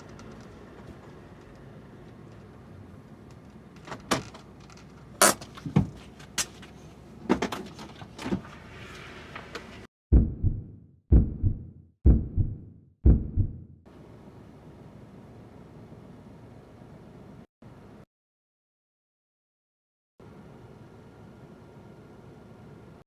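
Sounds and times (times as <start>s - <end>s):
van door opening and shutting: 3.7s - 6.1s
heavy low thump: 10.1s - 13.8s.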